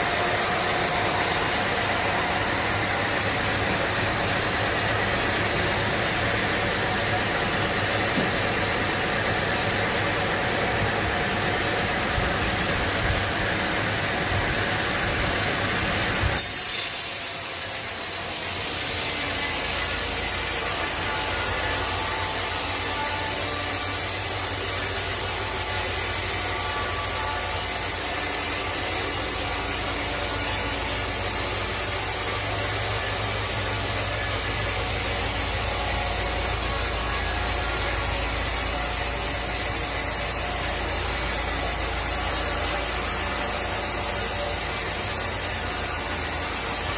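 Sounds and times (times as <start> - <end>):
saw grinding through log: 16.4 - 46.9.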